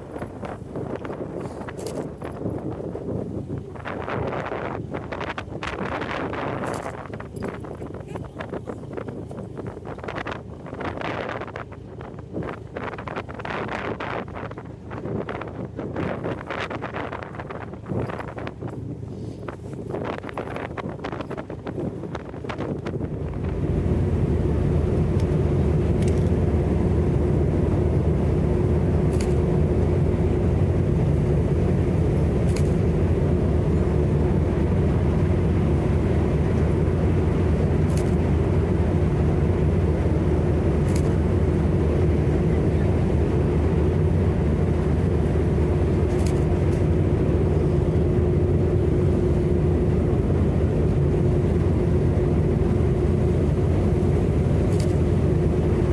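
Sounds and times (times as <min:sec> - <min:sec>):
ship engines droning: 0:22.9 - 0:55.9.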